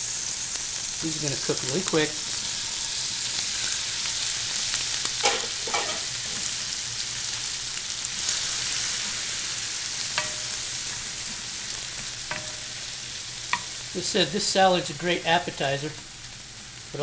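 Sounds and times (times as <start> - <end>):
shrimp sizzling in oil: 0.0 - 17.0
scraping in skillet: 5.0 - 6.9, 8.0 - 14.4.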